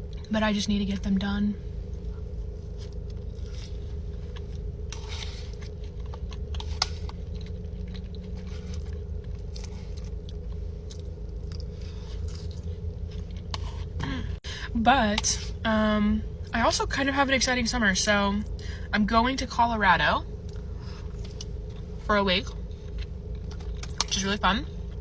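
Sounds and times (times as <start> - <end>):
steady low hum: 0.0 - 25.0
chewing with crunches: 1.8 - 14.3, 20.4 - 24.2.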